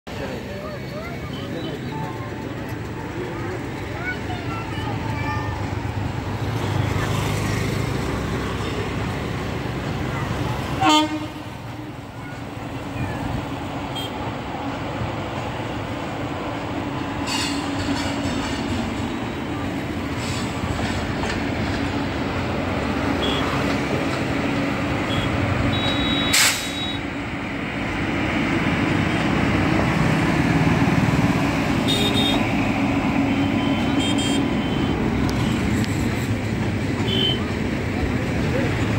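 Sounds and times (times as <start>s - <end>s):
train wheels rumbling on track: 0.1s - 38.9s
short high beep: 25.8s - 27.0s.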